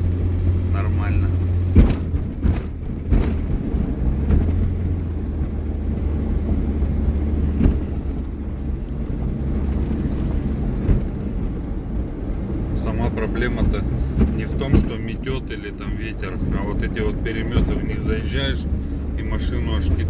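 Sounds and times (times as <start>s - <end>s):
vehicle driving on snowy road: 0.0s - 20.0s
knocks from road surface: 1.7s - 8.4s, 10.7s - 11.6s, 13.4s - 15.2s, 17.1s - 18.4s.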